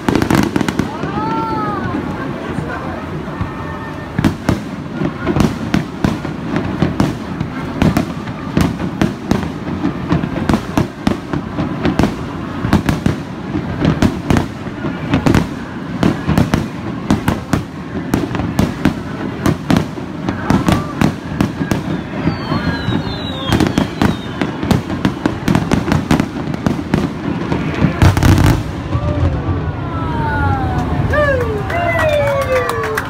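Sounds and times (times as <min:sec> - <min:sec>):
firework falling whistle: 0:20.2 - 0:26.6.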